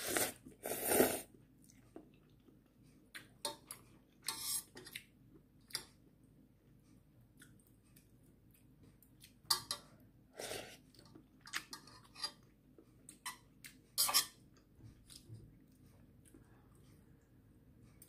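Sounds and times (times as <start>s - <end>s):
eating noodles: 0.0s - 2.6s.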